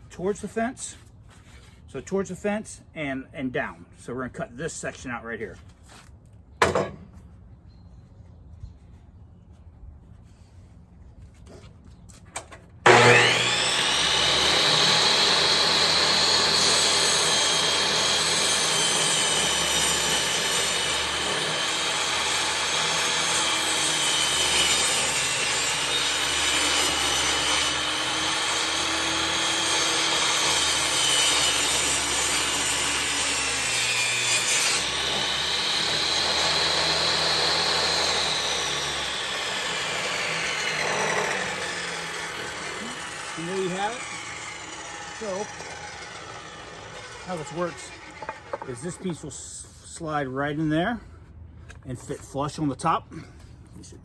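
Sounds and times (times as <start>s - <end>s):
table saw cutting wood: 12.8s - 49.3s.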